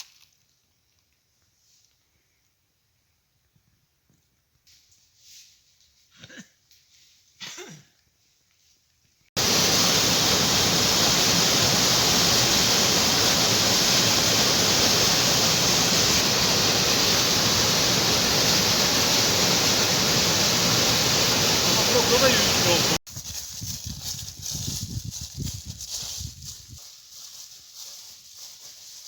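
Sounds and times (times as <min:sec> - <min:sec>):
waterfall rushing: 0:09.4 - 0:23.0.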